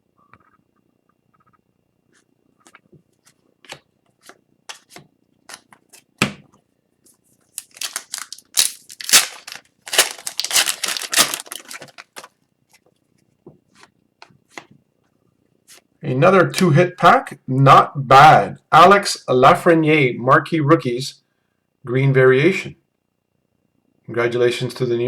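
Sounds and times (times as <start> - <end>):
wrapper tearing and crinkling: 7.6 - 12.3.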